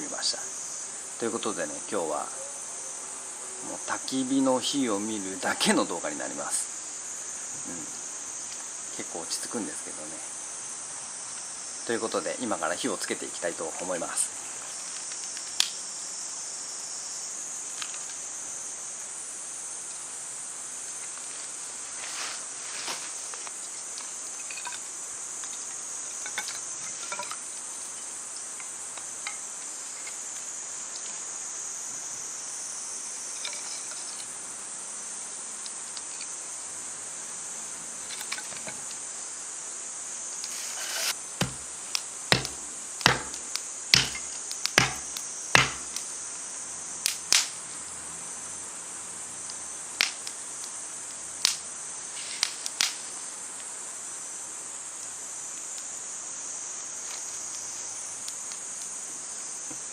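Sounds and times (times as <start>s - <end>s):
insects singing: 0.0s - 59.9s
sharp snaps or knocks: 40.5s - 46.1s.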